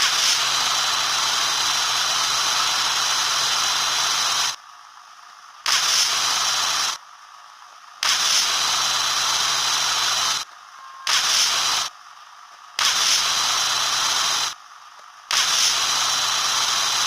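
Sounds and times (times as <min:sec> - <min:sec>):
bursts of hiss: 0:00.0 - 0:04.6, 0:05.6 - 0:07.0, 0:08.0 - 0:12.0, 0:12.7 - 0:14.6, 0:15.2 - 0:17.0.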